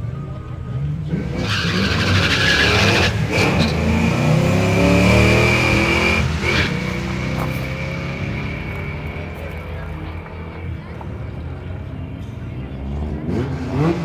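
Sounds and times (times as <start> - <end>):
car accelerating hard: 1.1 - 9.4, 13.0 - 14.0.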